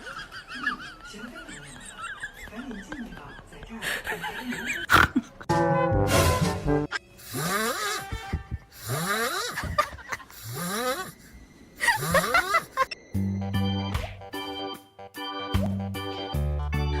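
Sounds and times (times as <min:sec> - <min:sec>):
background music: 0:05.5 - 0:09.2, 0:11.8 - 0:17.0
snoring with whistle: 0:07.2 - 0:08.1, 0:08.8 - 0:09.7, 0:10.4 - 0:11.3.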